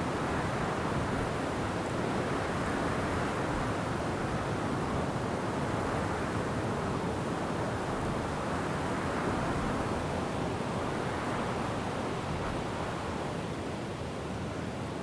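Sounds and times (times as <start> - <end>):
wind through forest trees: 0.0 - 15.0.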